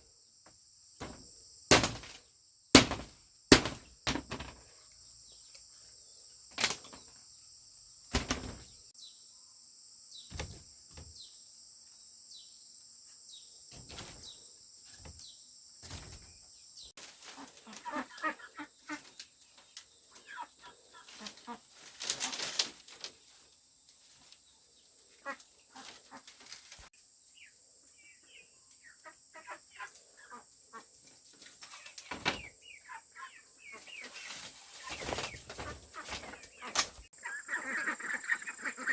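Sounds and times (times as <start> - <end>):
sharp knocks: 1.0 - 2.2, 2.8 - 4.6, 8.1 - 8.7
wings flapping: 8.1 - 8.8, 21.1 - 23.1, 34.0 - 37.1
chickens clucking: 20.1 - 21.8, 31.6 - 38.9.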